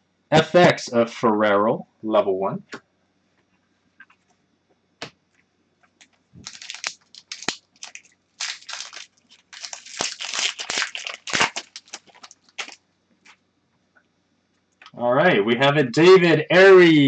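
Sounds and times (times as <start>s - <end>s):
card pack wrapper tearing: 6.4s - 12.8s.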